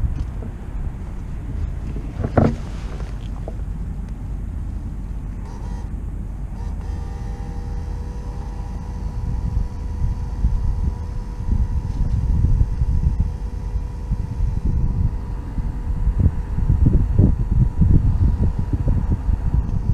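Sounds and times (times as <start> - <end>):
steady whine: 0.0 - 19.9
wind rumble on microphone: 0.0 - 19.9
motorcycle engine running: 4.7 - 19.9.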